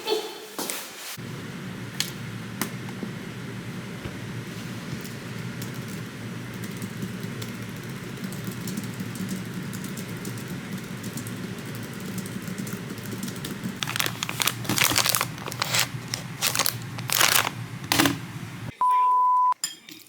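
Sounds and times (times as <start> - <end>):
crinkling rustles: 13.8 - 18.4
steady low hum: 13.8 - 18.7.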